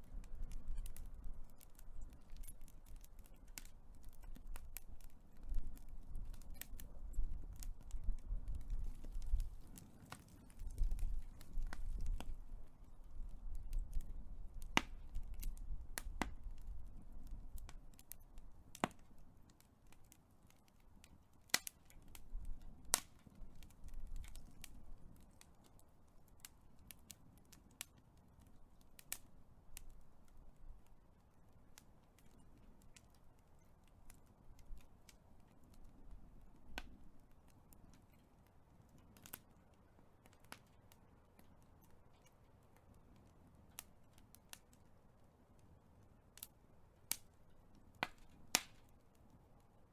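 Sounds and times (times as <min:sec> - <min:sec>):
low rumble of flame: 0:00.0 - 0:49.9
wood fire crackling: 0:00.0 - 0:49.9
sharp pops and snaps: 0:00.2 - 0:12.4, 0:13.6 - 0:16.7, 0:17.6 - 0:20.7, 0:21.5 - 0:25.8, 0:48.0 - 0:48.9.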